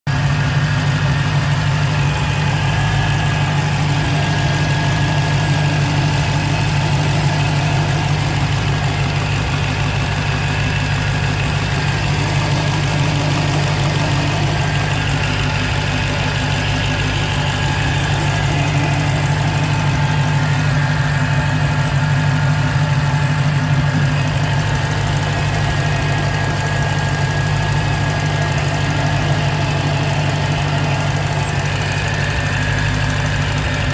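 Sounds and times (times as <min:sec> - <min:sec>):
car engine idling: 0:00.0 - 0:33.9
faint supercharger whine: 0:00.1 - 0:33.9.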